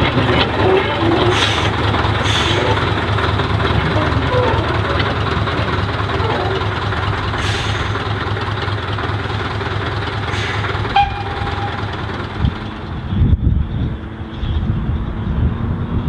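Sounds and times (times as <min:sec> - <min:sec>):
train running: 0:00.0 - 0:15.5
short high note: 0:10.9 - 0:11.9.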